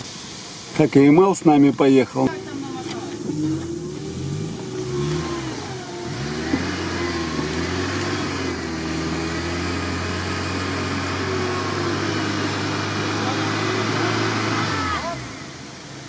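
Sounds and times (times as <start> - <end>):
truck engine running steadily: 0.0 - 16.0
truck engine revving: 2.2 - 16.0.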